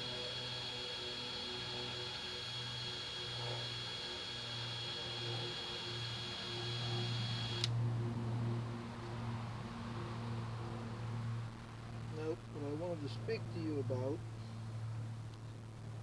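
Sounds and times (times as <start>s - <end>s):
thin high whine: 0.0s - 7.7s
low electrical hum: 0.0s - 16.0s.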